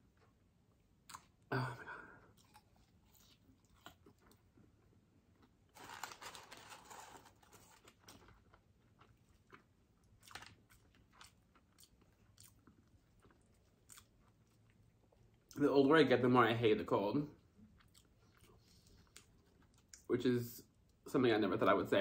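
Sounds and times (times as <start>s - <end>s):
chewing fries: 2.2s - 15.9s, 17.4s - 21.1s.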